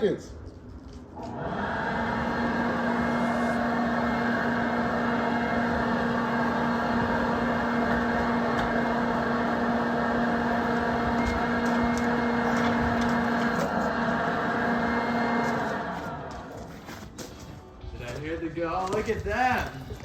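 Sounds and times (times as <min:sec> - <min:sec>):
electric blower motor humming: 0:01.2 - 0:16.9.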